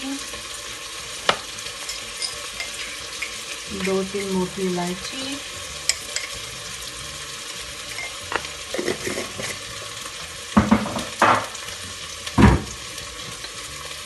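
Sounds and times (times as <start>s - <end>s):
onion sizzling in oil: 0.0s - 14.0s
kitchenware knocking and clinking: 8.0s - 9.6s, 10.6s - 11.6s, 12.4s - 12.8s.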